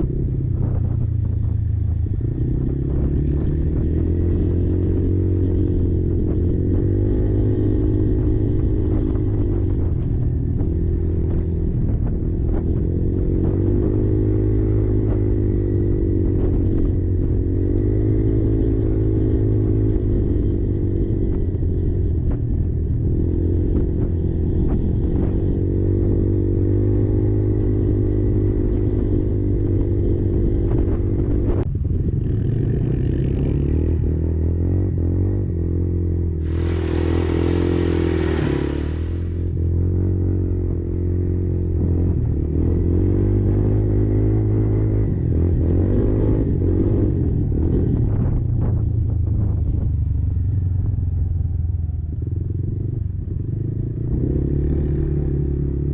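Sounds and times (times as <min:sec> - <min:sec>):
quad bike engine running: 0:00.0 - 0:55.9
loud rushing noise: 0:36.3 - 0:40.4.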